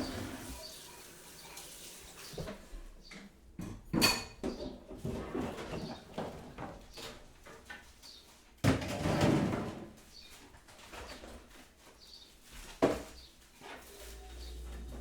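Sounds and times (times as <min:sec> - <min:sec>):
clattering and rustling: 0:02.3 - 0:15.0
faint birdsong: 0:05.4 - 0:08.4, 0:10.0 - 0:12.4, 0:14.1 - 0:15.0.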